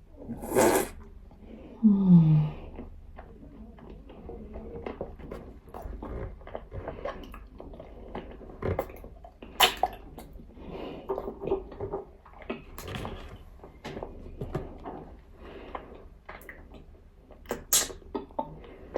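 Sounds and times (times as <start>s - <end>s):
dry clay being chewed: 2.7s - 10.4s
sharp snap: 17.5s - 18.0s.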